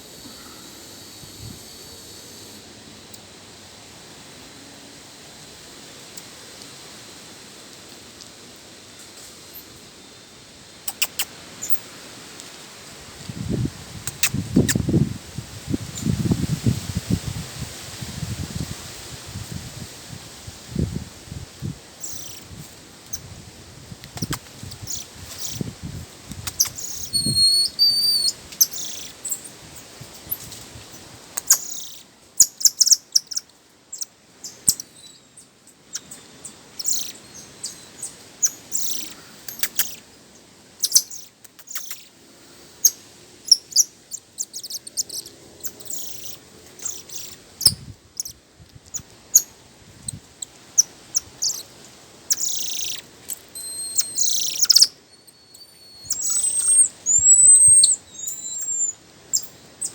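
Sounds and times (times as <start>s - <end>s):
wild birds chirping: 22.0s - 22.5s, 26.5s - 29.6s, 31.4s - 42.2s, 42.8s - 48.4s, 50.1s - 59.9s
bird whistled note: 27.0s - 28.4s, 55.5s - 58.9s.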